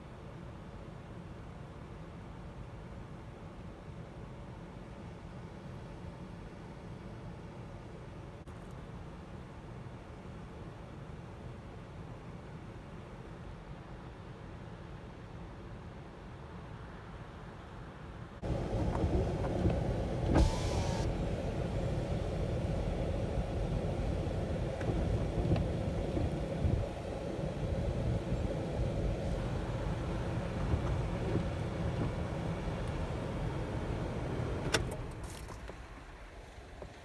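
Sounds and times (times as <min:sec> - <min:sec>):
vehicle engine humming: 0:18.4 - 0:37.0
short hiss: 0:20.3 - 0:21.2.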